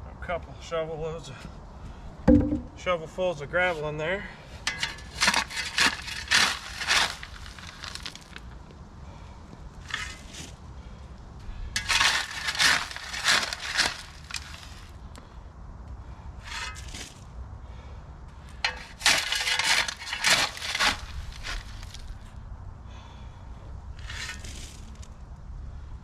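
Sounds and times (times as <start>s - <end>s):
shovel scooping gravel: 4.6s - 8.4s, 9.8s - 10.6s, 11.8s - 15.0s, 16.4s - 17.2s, 18.6s - 22.2s, 24.0s - 25.1s
gravel rattling into hole: 4.6s - 8.5s, 9.8s - 10.6s, 11.8s - 15.0s, 18.6s - 22.2s, 24.0s - 25.1s.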